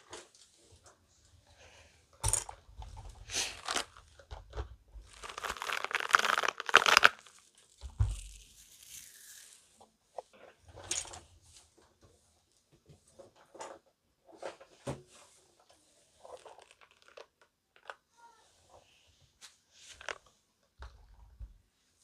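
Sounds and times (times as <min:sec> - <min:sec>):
rubber balls squishing in hands: 0:03.2 - 0:04.1, 0:05.0 - 0:09.3
rubbery crackles: 0:03.2 - 0:04.4, 0:05.0 - 0:09.5, 0:16.2 - 0:18.0.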